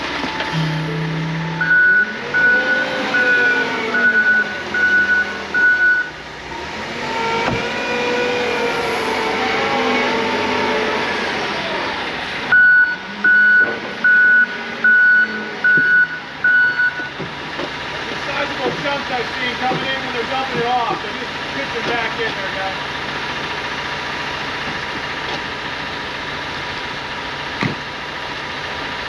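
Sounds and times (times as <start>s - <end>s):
loader engine revving: 0.0s - 29.0s
backup alarm beeping: 0.1s - 6.2s, 12.5s - 17.2s.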